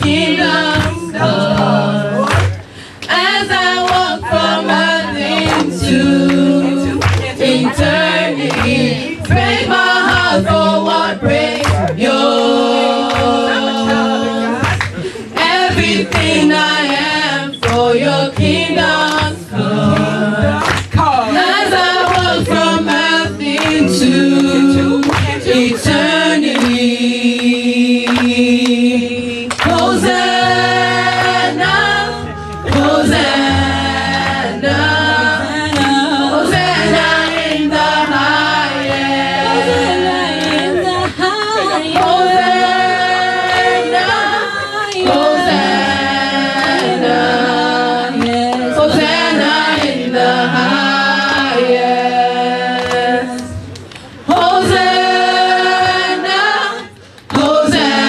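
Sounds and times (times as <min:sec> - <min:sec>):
bass line: 0:00.0 - 0:02.6
choir singing gospel song: 0:00.0 - 0:58.0.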